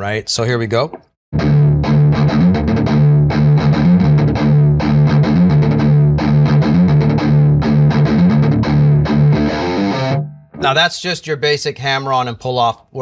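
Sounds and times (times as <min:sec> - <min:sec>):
distorted electric guitar riff: 0:01.4 - 0:11.0.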